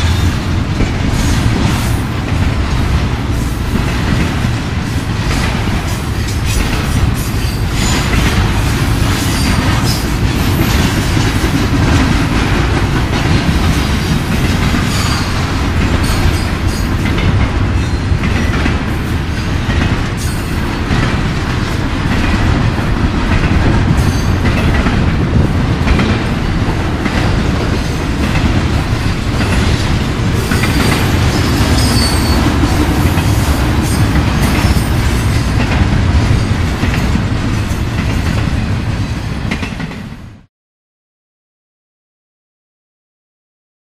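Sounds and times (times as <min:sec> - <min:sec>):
freight train wheels rumbling on rails: 0:00.0 - 0:40.5
high wheel squeals: 0:30.5 - 0:32.5.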